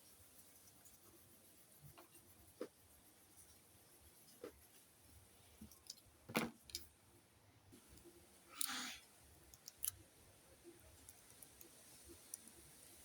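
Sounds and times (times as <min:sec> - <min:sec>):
small clicks and taps: 0:11.0 - 0:12.6.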